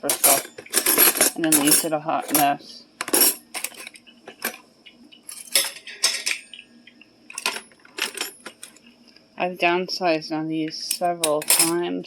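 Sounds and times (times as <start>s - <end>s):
metal cutlery clinking: 0.0s - 4.6s, 5.3s - 6.6s, 7.3s - 8.8s, 10.9s - 11.8s.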